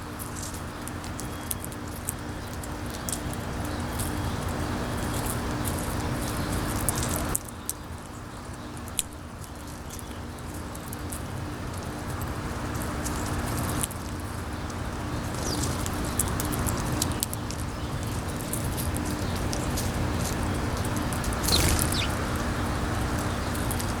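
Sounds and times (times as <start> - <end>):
birds pecking and cracking seeds: 0.1 - 24.0
steady low hum: 20.6 - 24.0.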